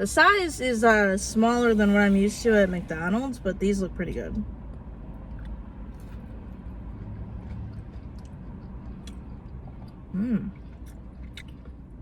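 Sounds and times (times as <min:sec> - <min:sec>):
steady low hum: 0:00.0 - 0:12.0
person chewing food: 0:04.7 - 0:12.0.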